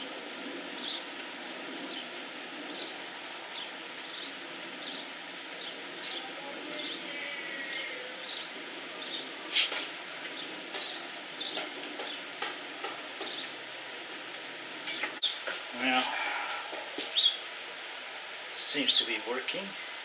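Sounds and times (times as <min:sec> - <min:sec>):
steady background hiss: 0:00.0 - 0:20.0
bird chirping: 0:00.8 - 0:14.0, 0:14.8 - 0:19.5.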